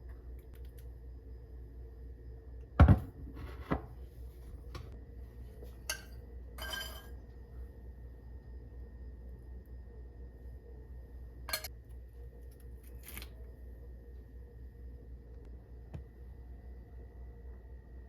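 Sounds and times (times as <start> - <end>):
dish ringing clink: 5.9 - 7.2
dishes clattering: 5.9 - 7.2.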